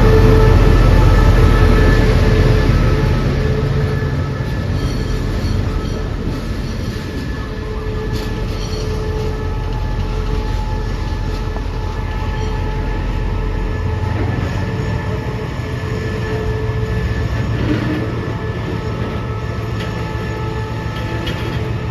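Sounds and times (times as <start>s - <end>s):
high wheel squeal: 0.0s - 13.2s
train wheels rumbling on rail: 0.0s - 21.9s.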